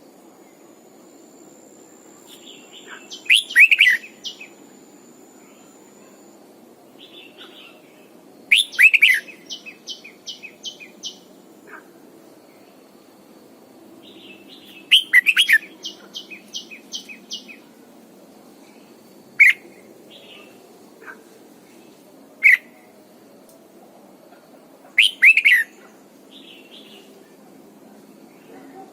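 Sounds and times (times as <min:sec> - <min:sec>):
bulbul singing: 0:02.3 - 0:04.7, 0:08.5 - 0:11.3, 0:14.1 - 0:17.6.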